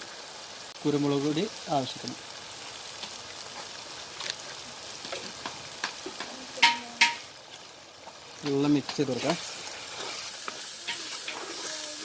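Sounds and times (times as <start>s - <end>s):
masala sizzling in oil: 0.0s - 12.0s
spoon scraping while stirring: 9.2s - 12.0s.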